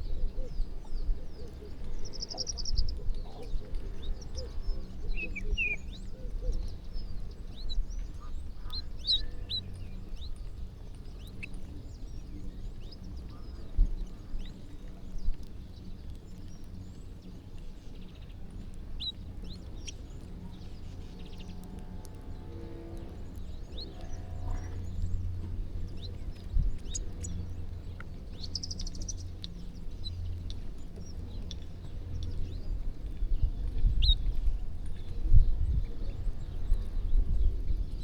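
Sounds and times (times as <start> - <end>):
flock of birds chirping: 0.0 - 38.0
low rumble: 19.4 - 38.0.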